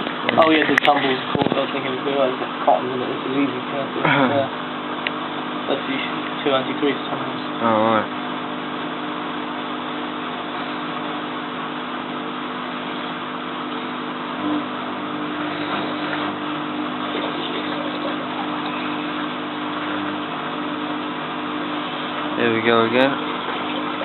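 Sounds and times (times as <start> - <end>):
washing machine running: 0.0 - 24.0.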